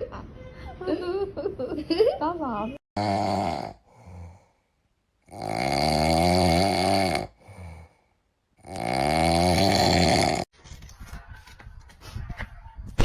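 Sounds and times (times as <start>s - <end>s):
pet snoring: 3.0s - 4.4s, 5.3s - 7.9s, 8.6s - 10.5s.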